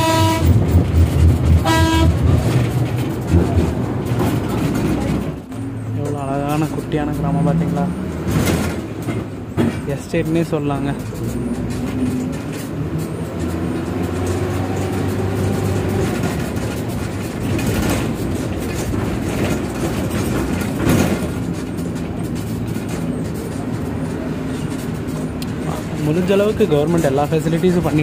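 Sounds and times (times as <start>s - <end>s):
bus body rattling: 0.0s - 28.0s
bus engine running: 0.0s - 28.0s.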